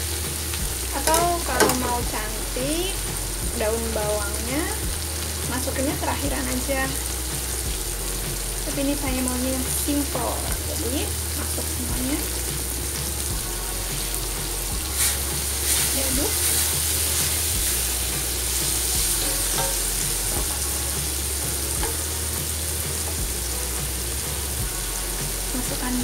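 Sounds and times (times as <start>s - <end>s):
vegetables sizzling in a wok: 0.0s - 26.0s
spatula scraping a wok: 10.5s - 26.0s.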